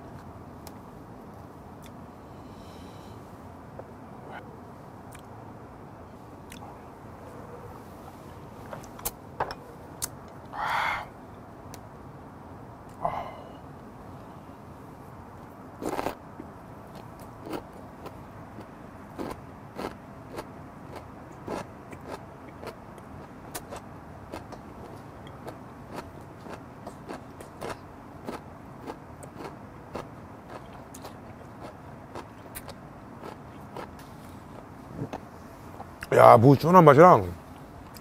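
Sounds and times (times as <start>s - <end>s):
man chewing crunchy radish: 6.4s - 6.7s, 15.8s - 35.2s.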